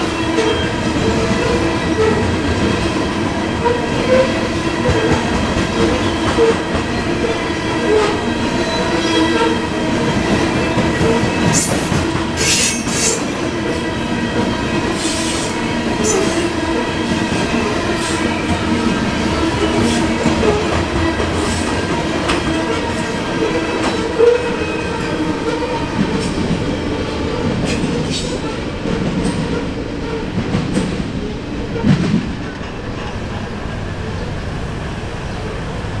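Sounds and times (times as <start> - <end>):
freight train wheels rumbling: 0.0 - 36.0.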